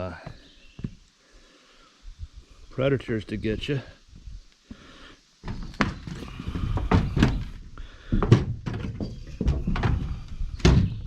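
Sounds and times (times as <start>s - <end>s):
speech: 0.0s - 0.4s, 2.7s - 4.0s
thumps and knocks: 5.4s - 11.0s.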